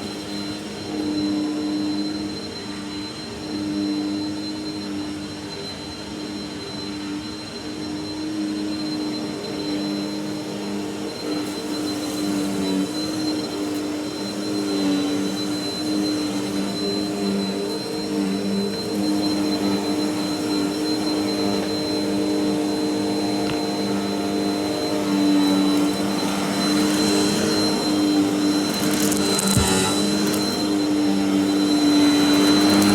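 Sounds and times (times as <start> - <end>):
vacuum cleaner running: 0.0 - 32.9.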